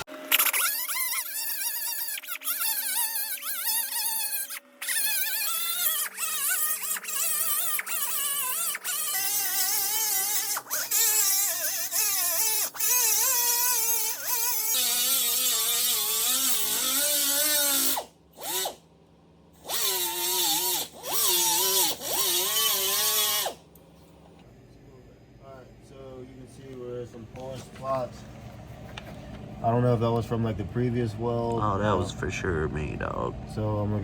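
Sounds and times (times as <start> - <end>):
angle grinder grinding metal: 0.0 - 18.8, 19.6 - 23.6.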